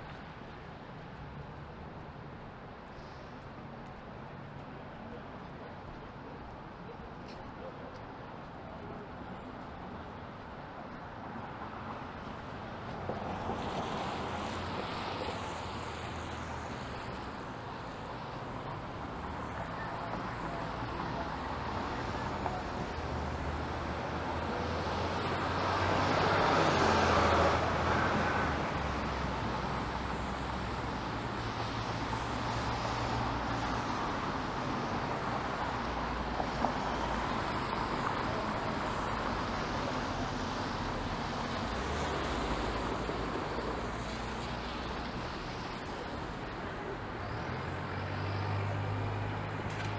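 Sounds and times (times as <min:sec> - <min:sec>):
cars passing on wet road: 0:11.0 - 0:49.9.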